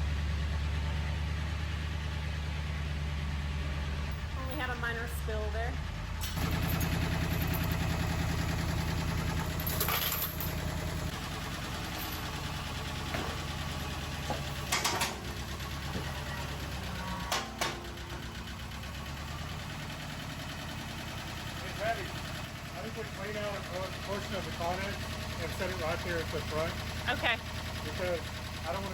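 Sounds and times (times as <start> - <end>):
tractor engine running: 0.0 - 28.9
sharp metal clanks: 17.2 - 18.3.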